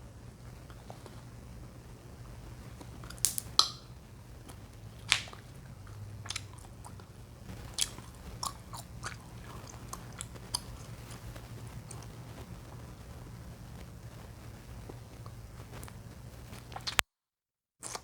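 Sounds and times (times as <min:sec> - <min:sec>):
chewing gum popping: 0:02.7 - 0:12.8, 0:16.6 - 0:17.0.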